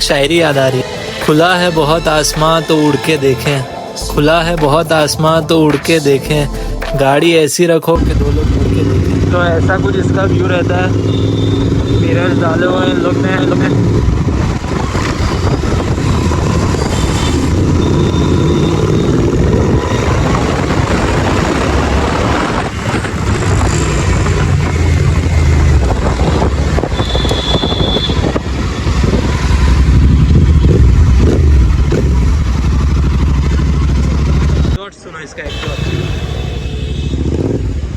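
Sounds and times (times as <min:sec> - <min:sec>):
motorcycle engine accelerating: 0:08.0 - 0:34.8, 0:36.7 - 0:37.9.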